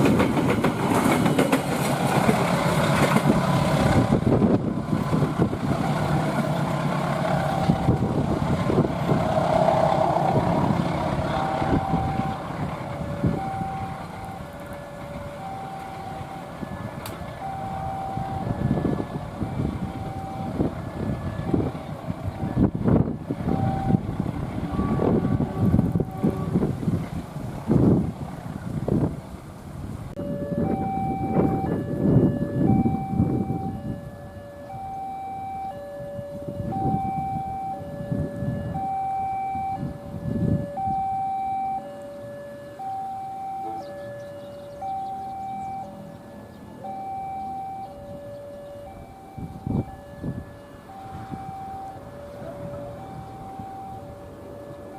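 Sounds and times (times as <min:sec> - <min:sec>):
wind: 0:00.0 - 0:54.9
low rumbles: 0:02.0 - 0:34.1
two-tone crossing alarm: 0:02.4 - 0:26.7, 0:30.2 - 0:54.9.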